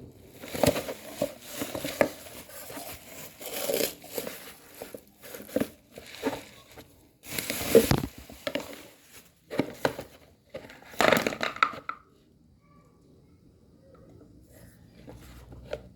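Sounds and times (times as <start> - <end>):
packaging crinkling: 0.2 - 11.6.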